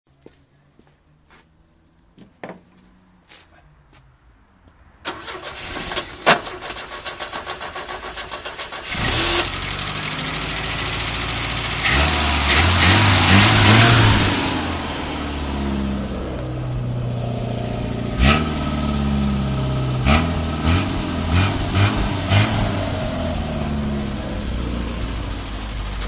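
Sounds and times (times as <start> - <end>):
starter motor cranking: 5.1 - 14.4
car engine running and revving: 8.8 - 26.0.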